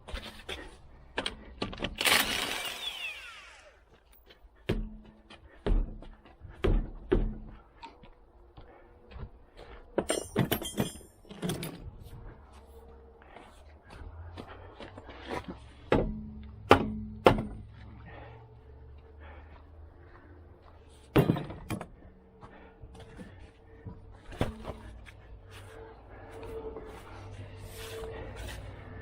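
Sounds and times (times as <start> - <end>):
metal tools knocking and clanking: 10.0 - 11.9, 21.1 - 21.9.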